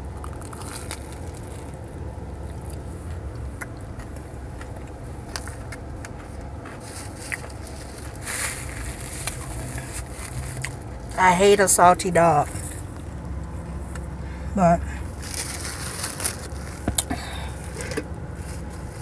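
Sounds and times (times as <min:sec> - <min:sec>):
steady low hum: 0:00.0 - 0:19.0
chewing and mouth clicks: 0:02.4 - 0:08.1
paper napkin rustle: 0:15.2 - 0:16.8.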